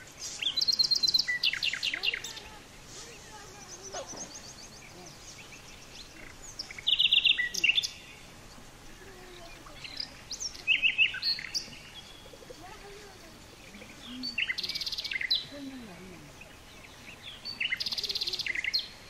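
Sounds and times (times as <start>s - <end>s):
rapid high-pitched bird chirps: 0.2s - 2.5s.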